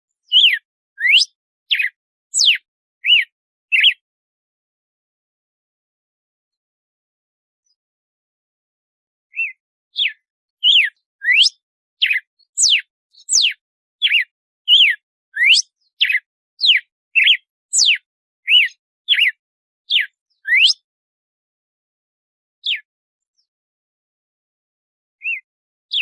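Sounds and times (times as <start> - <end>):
bird whistling clear notes: 0.3 - 4.0, 10.6 - 19.3, 19.9 - 20.8.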